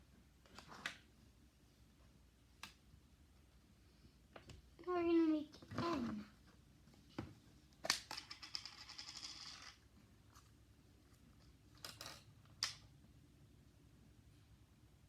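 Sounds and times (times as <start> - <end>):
small objects clicking on tabletop: 7.8 - 9.8, 11.8 - 12.9.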